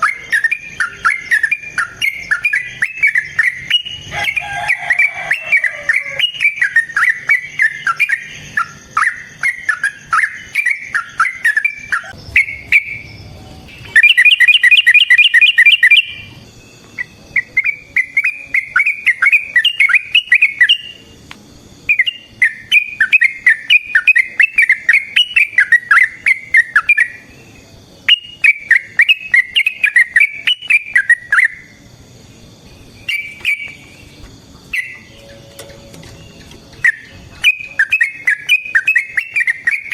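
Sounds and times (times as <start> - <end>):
loud fast repeated bird notes: 0.0 - 35.4, 36.2 - 39.9
bulbul singing chattering phrases: 0.0 - 39.9.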